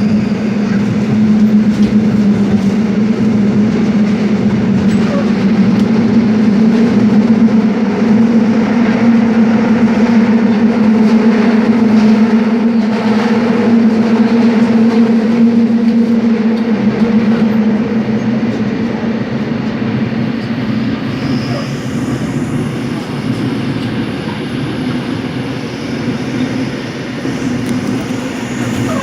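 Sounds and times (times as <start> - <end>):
subway train rolling rumble: 0.0 - 29.0
train motor hum: 0.0 - 29.0.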